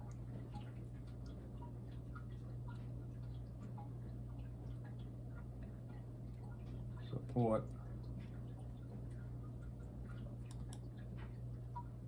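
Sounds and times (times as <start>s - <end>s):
low electrical hum: 0.0s - 12.0s
mouse and keyboard clicks: 10.5s - 10.8s.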